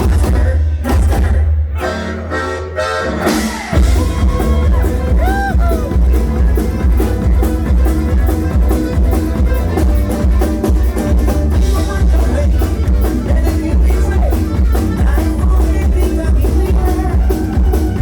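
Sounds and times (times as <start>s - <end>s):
bass: 0.0s - 18.0s
drum kit beat: 0.0s - 18.0s
acoustic string band playing: 1.9s - 14.4s.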